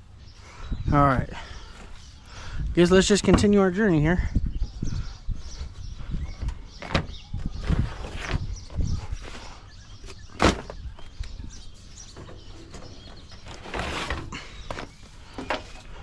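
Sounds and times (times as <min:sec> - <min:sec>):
scraping rustle: 0:07.6 - 0:16.0.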